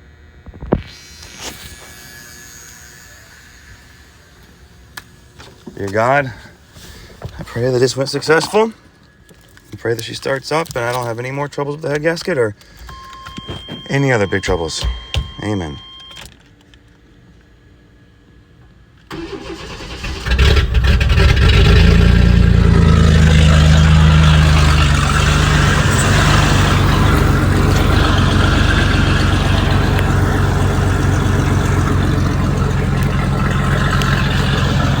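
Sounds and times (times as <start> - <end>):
starter cranking: 19.1 - 35.0
truck engine running: 19.1 - 35.0.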